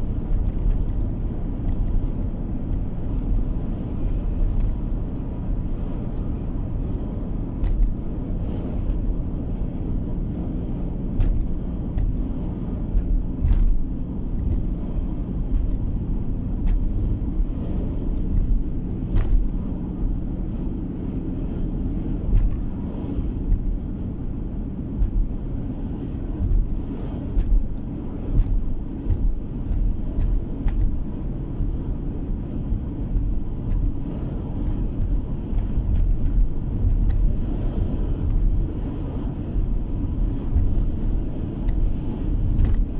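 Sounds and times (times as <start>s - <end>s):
car engine and tyre noise: 0.0s - 42.9s.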